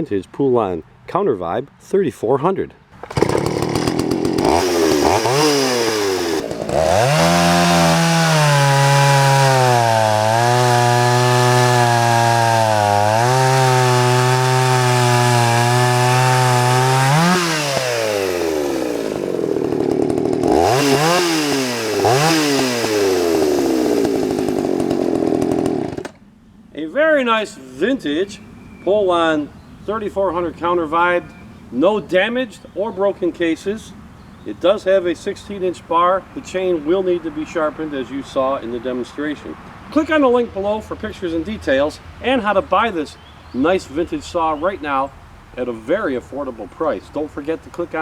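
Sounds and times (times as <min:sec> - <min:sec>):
chainsaw revving: 0:03.0 - 0:26.2.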